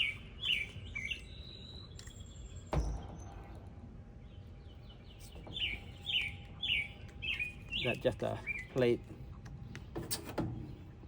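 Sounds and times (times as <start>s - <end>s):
bird chirping: 0.0s - 3.4s, 4.2s - 8.9s.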